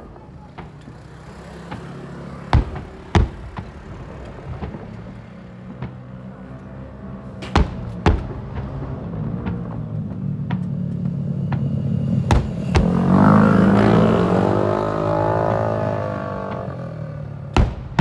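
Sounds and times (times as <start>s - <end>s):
fireworks booming: 0.0s - 18.0s
faint firework pops: 17.5s - 18.0s.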